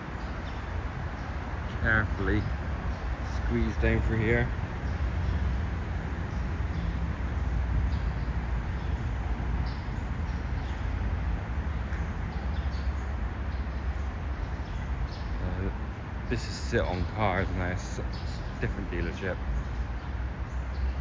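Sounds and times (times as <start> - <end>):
steady low rumble: 0.0 - 13.9.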